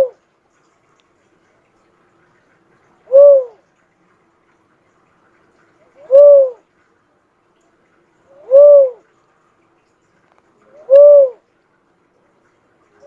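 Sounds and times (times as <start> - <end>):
dove cooing: 0.0 - 0.2, 3.0 - 3.6, 5.9 - 6.6, 8.3 - 9.0, 10.7 - 11.4.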